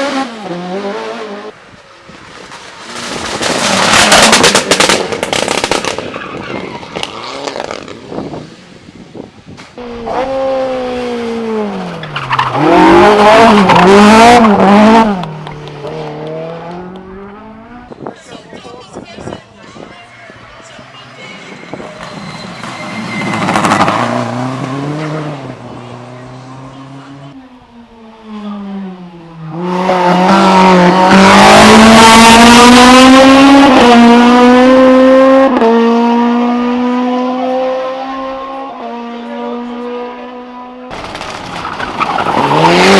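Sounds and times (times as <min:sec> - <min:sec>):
race car engine revving: 0:09.8 - 0:18.0, 0:21.9 - 0:42.9.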